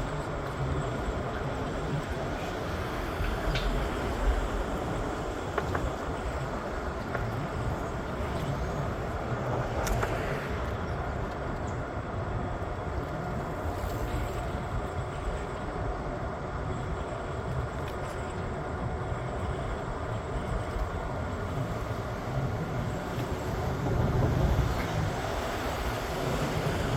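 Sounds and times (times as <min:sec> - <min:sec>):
train rumbling on track: 0:00.0 - 0:26.9
faint clicks: 0:09.8 - 0:11.8.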